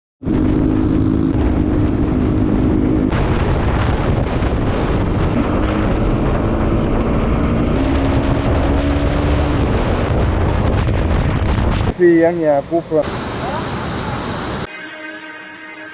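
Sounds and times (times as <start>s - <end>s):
wind buffeting microphone: 0.2s - 14.7s
waterfall roaring: 11.9s - 14.7s.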